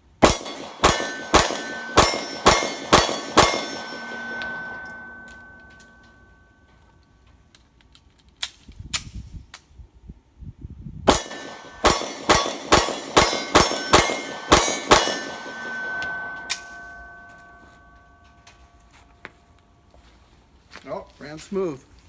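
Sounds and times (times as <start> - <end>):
pistol shots: 0.2 - 5.8, 11.1 - 17.2.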